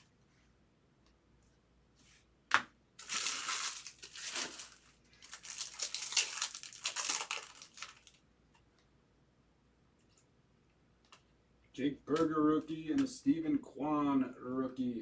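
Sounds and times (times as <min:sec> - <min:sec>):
foil wrapper tearing and crinkling: 0:03.0 - 0:08.2.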